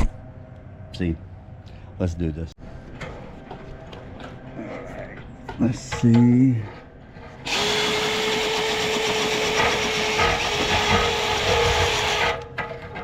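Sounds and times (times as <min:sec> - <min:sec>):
cleaning tool motor hum: 0:07.4 - 0:12.4.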